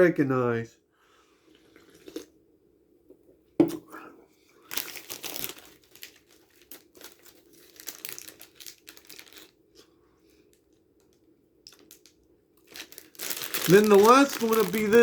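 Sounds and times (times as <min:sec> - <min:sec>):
plastic packaging crinkling: 0:04.6 - 0:09.7, 0:11.0 - 0:15.0.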